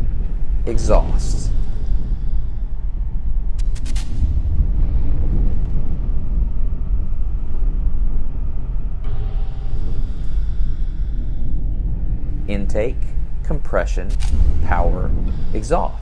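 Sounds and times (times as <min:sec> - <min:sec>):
engine low rumble: 0:00.0 - 0:16.0.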